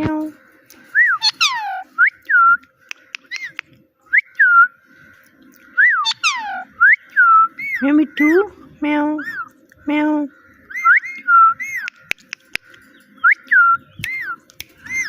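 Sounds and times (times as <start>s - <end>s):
parrot chirping: 1.1s - 2.0s, 3.2s - 3.6s, 5.9s - 8.4s, 13.2s - 15.0s.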